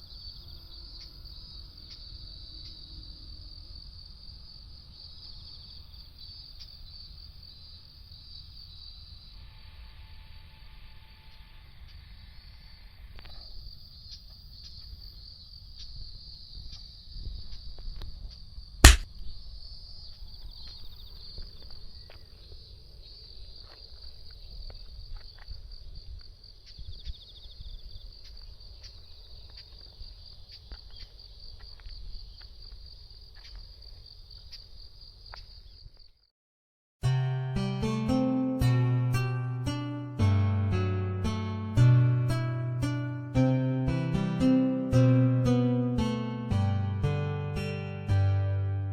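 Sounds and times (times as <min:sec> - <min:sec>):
sharp knock: 0:18.8 - 0:19.0.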